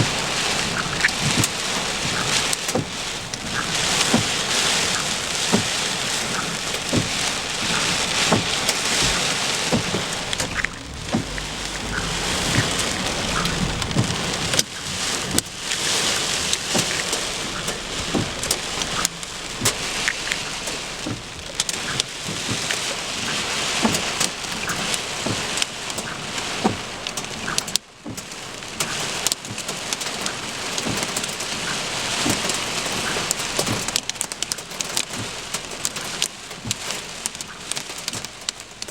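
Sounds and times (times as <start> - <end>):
thunder rumble: 0.0 - 25.2
heavy rain on hard surface: 0.0 - 38.9.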